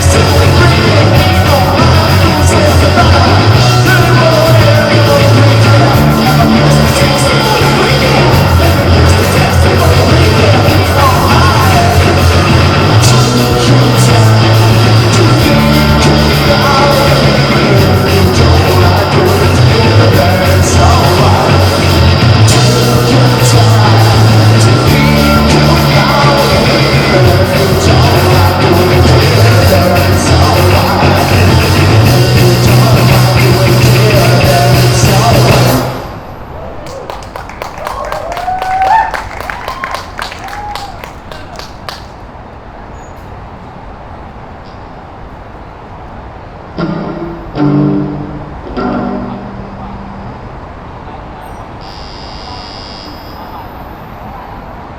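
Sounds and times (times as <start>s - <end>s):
live band playing rock music: 0.0s - 36.0s
heavy bass line: 0.0s - 36.3s.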